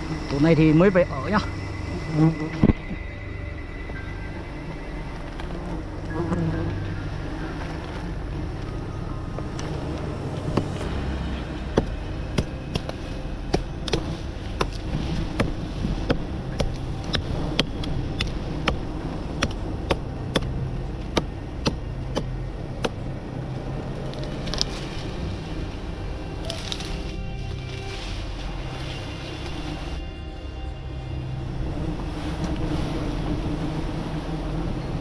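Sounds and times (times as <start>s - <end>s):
low steady rumble: 0.0s - 35.0s.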